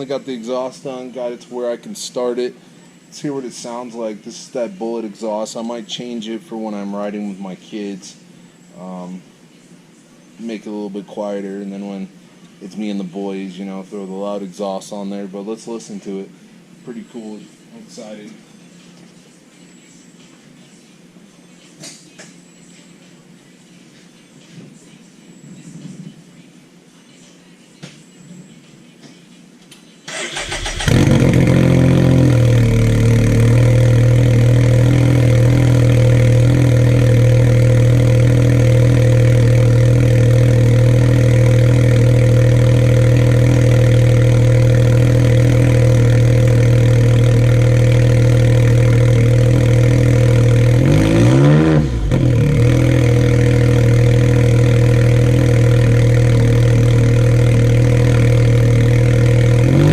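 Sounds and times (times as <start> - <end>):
loud engine idling and revving: 30.4 - 59.9.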